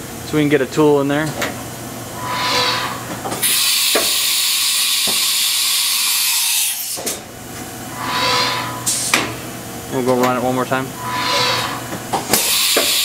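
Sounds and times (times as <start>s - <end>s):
mechanical whir: 1.9s - 4.2s, 10.7s - 13.0s
compressed air blast: 2.1s - 4.2s.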